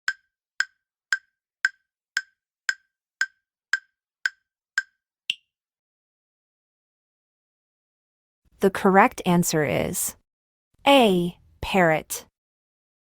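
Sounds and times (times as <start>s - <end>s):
wood-block timer ticks: 0.0s - 5.4s.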